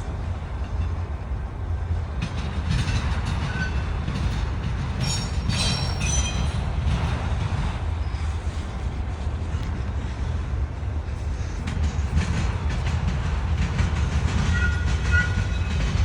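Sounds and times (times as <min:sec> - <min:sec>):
freight train rumbling: 0:00.0 - 0:16.0
train wheel clicks: 0:01.9 - 0:07.8, 0:11.5 - 0:16.0
wheel squeals: 0:05.0 - 0:06.6, 0:14.4 - 0:16.0.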